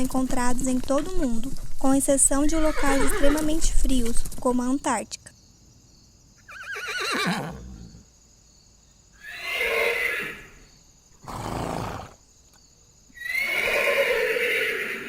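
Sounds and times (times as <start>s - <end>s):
horse neighing: 2.6s - 3.6s, 6.4s - 8.0s, 9.2s - 10.6s, 11.2s - 12.2s, 13.2s - 15.0s
horse breathy snort: 11.2s - 12.2s.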